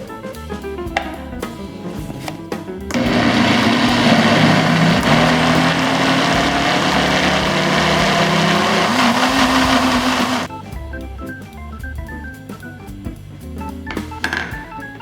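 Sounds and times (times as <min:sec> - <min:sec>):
electric blender running: 0:02.9 - 0:10.5.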